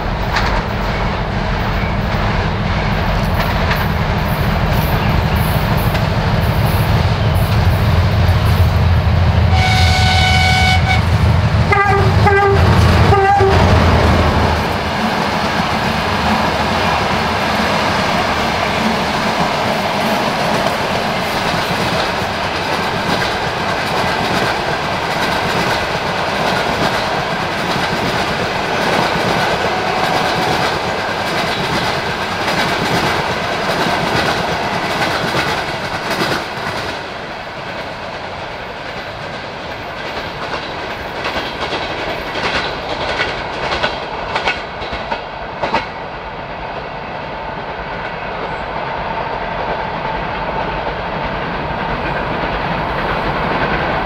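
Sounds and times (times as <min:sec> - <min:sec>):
train wheels rushing on rails: 0:00.0 - 0:54.0.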